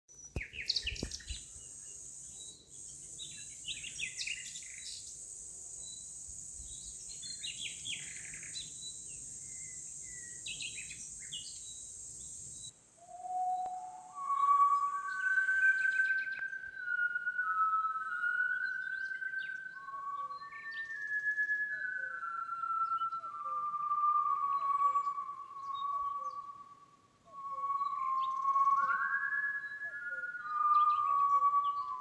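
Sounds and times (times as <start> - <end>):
songbirds chirping: 0.1 - 12.8, 13.5 - 32.0
steady high hiss: 0.4 - 16.6
whistled tune: 13.0 - 32.0.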